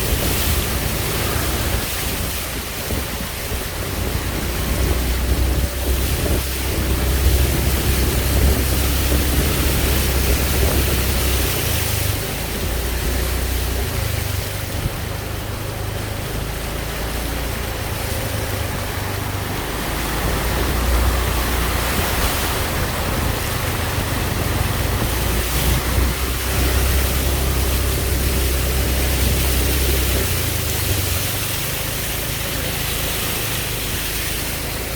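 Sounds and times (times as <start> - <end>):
storm wind rushing: 0.0 - 14.1, 18.4 - 31.1
gusts rumbling on microphone: 0.0 - 34.9.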